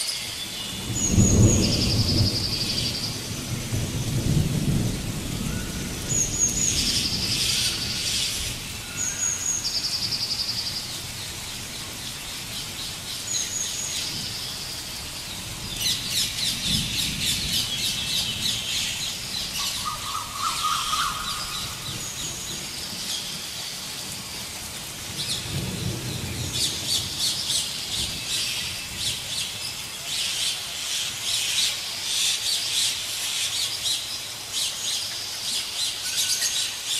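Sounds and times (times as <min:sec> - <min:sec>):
birds chirping and whistling: 0:12.0 - 0:23.4.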